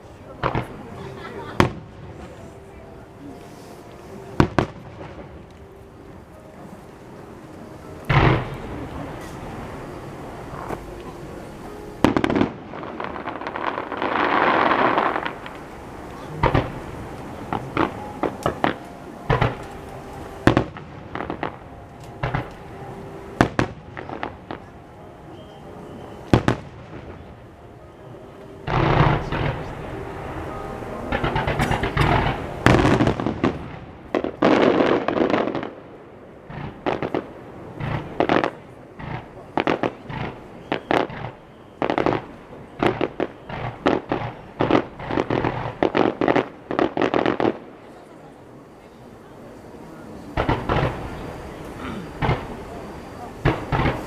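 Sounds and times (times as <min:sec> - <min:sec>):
fireworks bursting with sharp bangs: 0:00.0 - 0:48.2, 0:49.4 - 0:54.0
fireworks crackling: 0:00.0 - 0:54.0.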